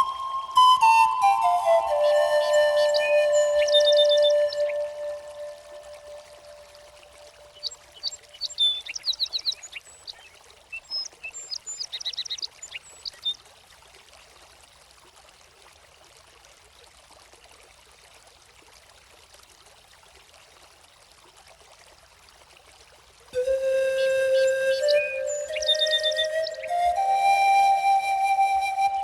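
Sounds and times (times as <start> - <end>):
stream flowing: 0.0 - 29.0
small birds chirping: 1.9 - 5.0, 7.4 - 13.4, 24.0 - 27.0.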